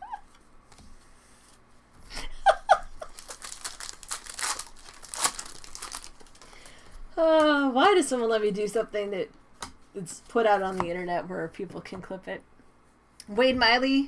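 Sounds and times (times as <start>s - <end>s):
person chuckling: 2.1s - 3.4s
wrapper crinkling and tearing: 2.9s - 6.9s.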